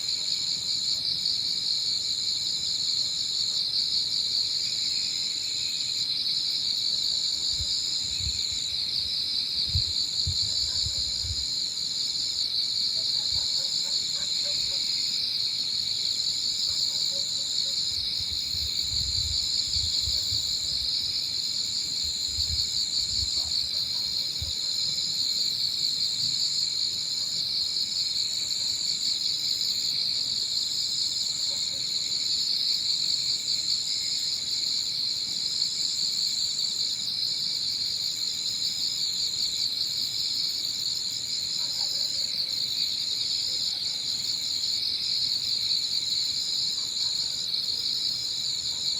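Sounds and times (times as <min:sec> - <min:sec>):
crickets trilling: 0:00.0 - 0:48.9
wind rumble on microphone: 0:09.6 - 0:11.4, 0:18.2 - 0:20.8, 0:22.3 - 0:23.5.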